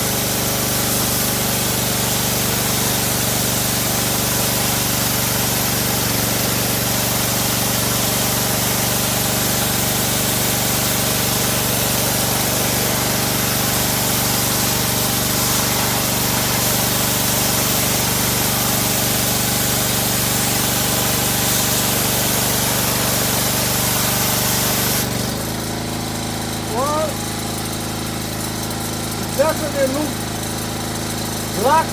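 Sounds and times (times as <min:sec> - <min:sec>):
hissing water jet spraying: 0:00.0 - 0:25.3
pressure washer engine running: 0:00.0 - 0:31.9.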